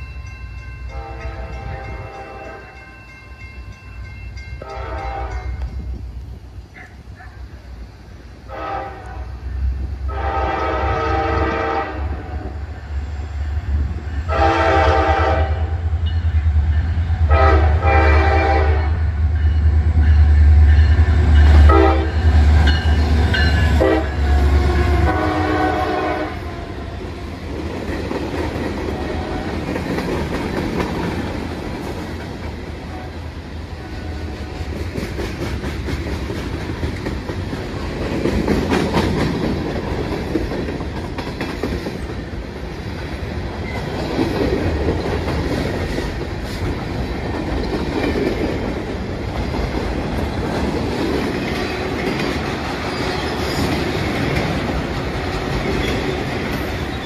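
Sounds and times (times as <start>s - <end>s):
locomotive air horn blasts: 0.9s - 2.8s, 4.6s - 5.6s, 8.5s - 9.5s, 10.1s - 12.6s, 14.3s - 15.8s, 17.3s - 19.0s, 21.6s - 22.2s, 23.7s - 26.7s, 32.9s - 33.2s, 33.8s - 34.7s
wheels clacking over rail joints: 34.5s - 57.0s.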